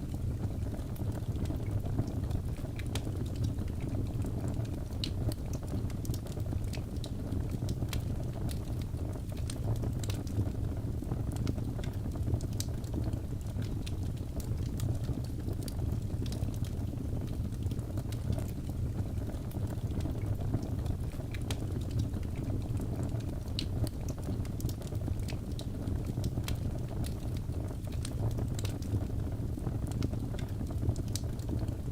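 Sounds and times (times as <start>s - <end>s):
fire crackles and pops: 0.0s - 31.9s.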